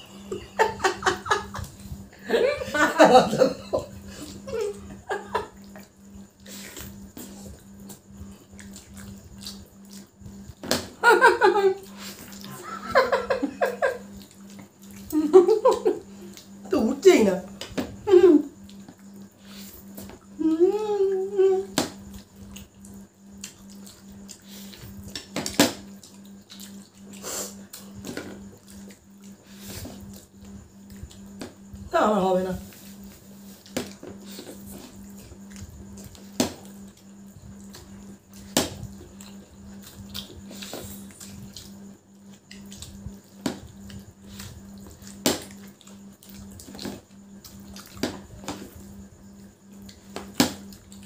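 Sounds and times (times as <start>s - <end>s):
wet slurping and smacking: 5.6s - 10.4s, 22.0s - 28.0s, 37.6s - 48.2s.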